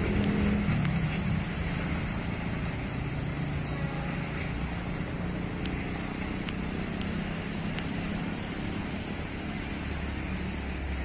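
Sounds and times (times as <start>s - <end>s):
train wheels rumbling on rails: 0.0s - 6.8s.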